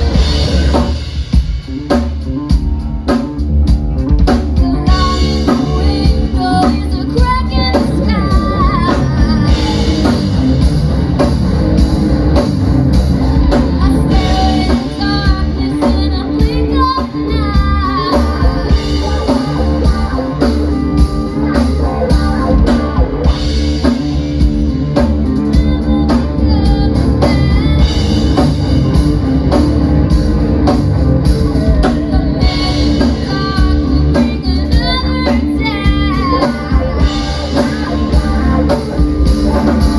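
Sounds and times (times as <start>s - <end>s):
live rock band playing: 0.0s - 39.9s
lead singer singing: 4.0s - 10.6s, 13.3s - 24.2s, 25.0s - 29.0s, 31.2s - 39.9s.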